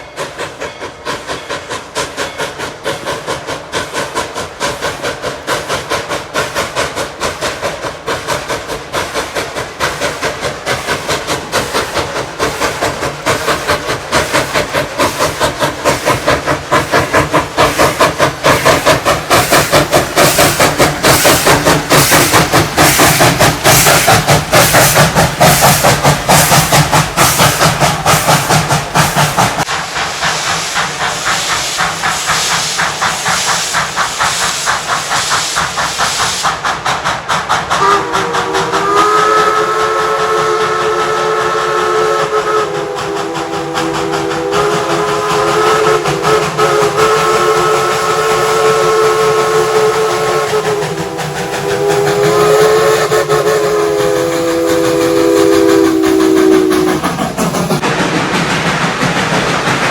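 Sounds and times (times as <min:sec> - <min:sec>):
steam hiss: 0:00.0 - 0:59.9
steam locomotive exhaust chuffs: 0:00.0 - 0:59.9
steam whistle chord: 0:37.8 - 0:50.7, 0:51.6 - 0:57.0.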